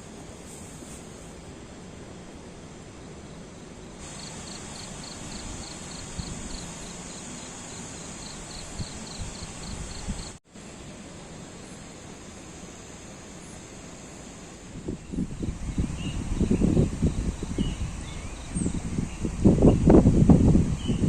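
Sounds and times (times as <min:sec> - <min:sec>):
outdoor rushing hiss: 0:00.0 - 0:21.0
cricket chirping: 0:03.8 - 0:10.4.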